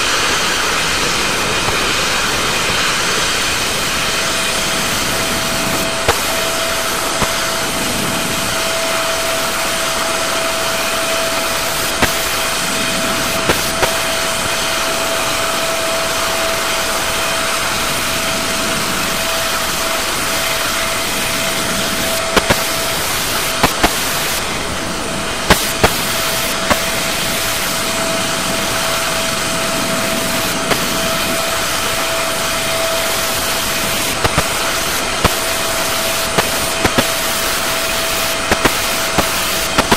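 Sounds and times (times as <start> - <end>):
helicopter turbine and rotor: 0.0 - 39.9
sharp recording glitch clicks: 5.7 - 6.5, 11.9 - 14.1, 22.2 - 24.4, 25.5 - 27.0, 34.0 - 39.9.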